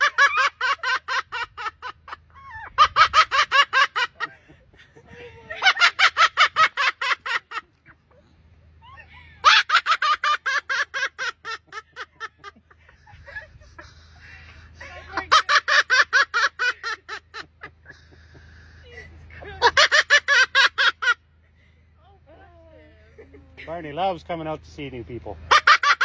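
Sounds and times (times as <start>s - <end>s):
bird laughing call: 0.0s - 8.1s, 8.8s - 18.9s, 19.6s - 21.2s.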